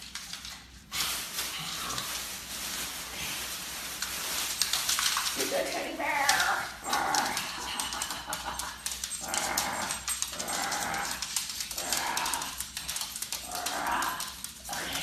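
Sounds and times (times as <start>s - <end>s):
small clicking sounds: 6.2s - 15.0s.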